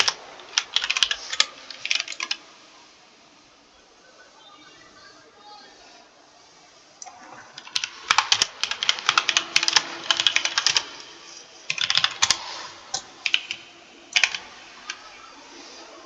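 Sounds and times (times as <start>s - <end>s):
typing on computer keyboard: 0.0s - 2.4s, 7.6s - 11.1s, 11.7s - 15.1s.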